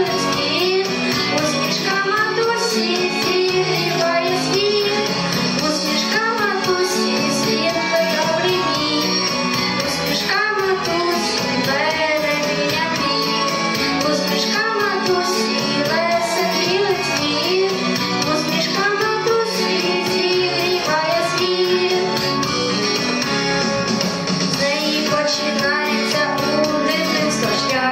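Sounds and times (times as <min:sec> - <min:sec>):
instrumental backing music: 0:00.0 - 0:27.9
person singing: 0:09.8 - 0:22.3, 0:24.6 - 0:27.9.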